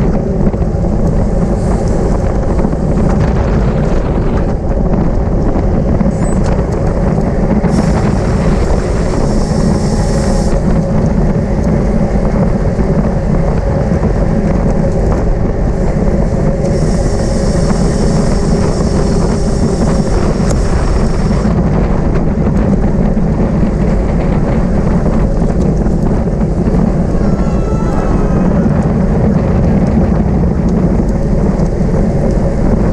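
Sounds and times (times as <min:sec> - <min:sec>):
wind roaring over microphone: 0:00.0 - 0:32.9
high hiss: 0:07.7 - 0:10.8, 0:16.6 - 0:21.5.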